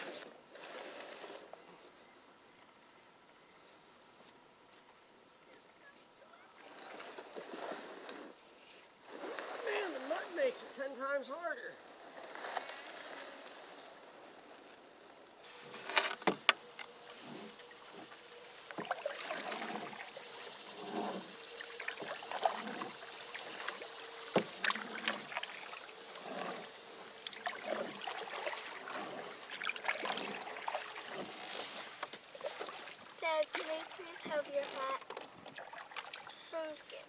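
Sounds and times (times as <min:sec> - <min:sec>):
paddle splashes in water: 0:06.5 - 0:08.4, 0:09.0 - 0:10.9, 0:15.4 - 0:36.7
canoe knocks: 0:15.6 - 0:20.0, 0:24.3 - 0:26.6.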